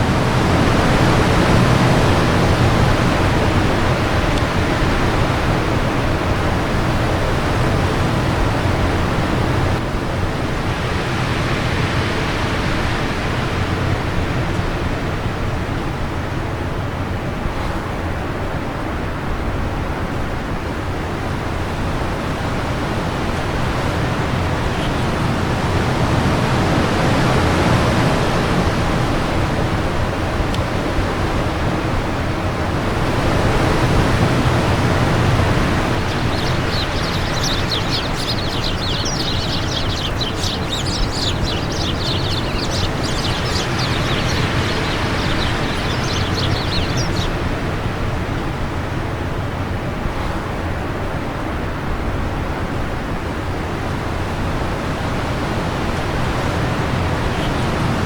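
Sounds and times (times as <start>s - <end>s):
wind gusting: 22.0s - 49.0s, 55.1s - 58.0s
bird twittering: 24.4s - 25.7s, 34.6s - 47.6s, 57.0s - 58.0s.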